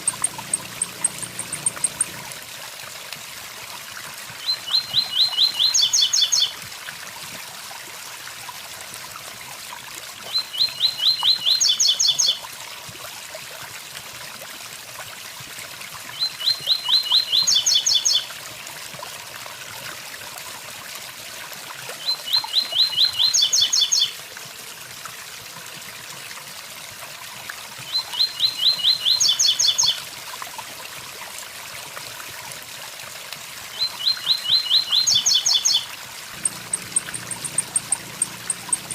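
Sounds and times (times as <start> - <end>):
bird singing: 0.0 - 2.3, 4.4 - 6.5, 36.4 - 38.9.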